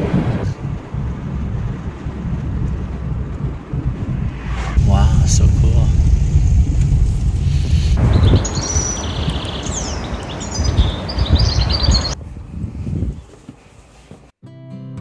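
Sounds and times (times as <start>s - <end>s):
low outdoor rumble: 0.0s - 13.2s
small birds chirping: 7.7s - 12.2s.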